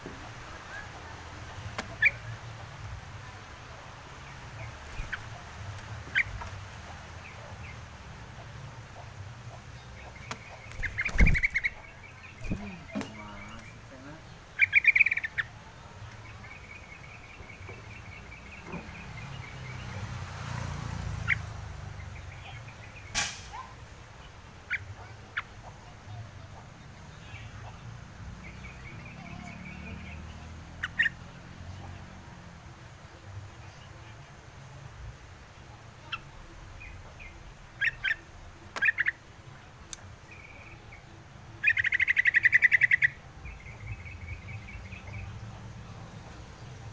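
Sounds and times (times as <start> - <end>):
sharp clicks or knocks: 23.1 - 23.5.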